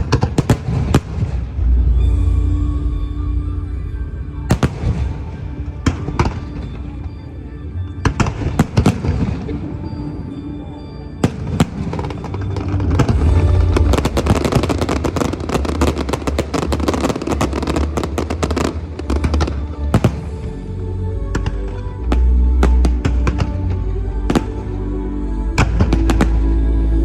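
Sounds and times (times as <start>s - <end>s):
fireworks bangs and crackling: 0.0s - 2.1s, 4.4s - 7.2s, 11.2s - 20.4s
deep rumble: 0.0s - 27.0s
music: 0.0s - 27.0s.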